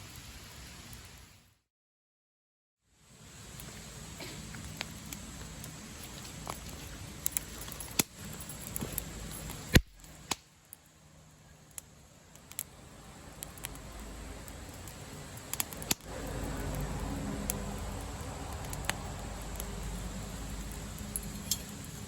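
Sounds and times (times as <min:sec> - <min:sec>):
campfire crackling: 0:00.0 - 0:01.5, 0:02.9 - 0:22.0
sharp fire pops: 0:07.2 - 0:10.5, 0:13.3 - 0:21.8.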